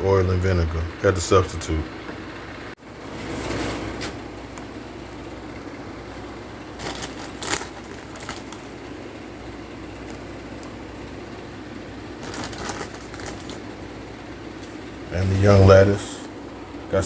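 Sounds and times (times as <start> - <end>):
room noise hum: 0.0 - 17.0
quick handling sounds: 6.7 - 8.7, 12.2 - 13.8.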